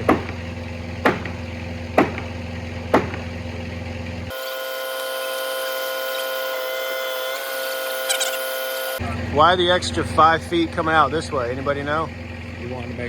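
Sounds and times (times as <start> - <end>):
truck engine humming: 0.0 - 13.0
high-pitched whine: 4.3 - 9.4.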